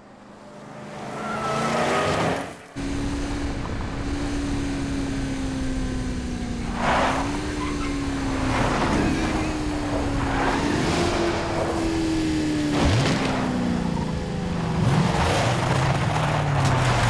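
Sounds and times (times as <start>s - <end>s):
car engine at high revs: 0.0s - 17.0s
tyre squeal: 1.0s - 2.1s, 7.0s - 9.6s.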